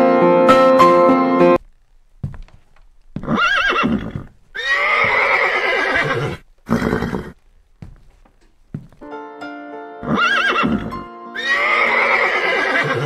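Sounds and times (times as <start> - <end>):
horse neighing: 3.2 - 7.4, 10.0 - 13.0.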